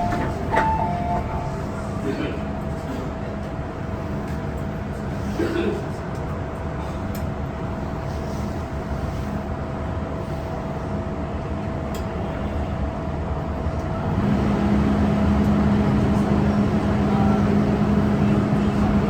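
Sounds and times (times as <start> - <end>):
electric train rumble and whine: 0.0 - 19.0.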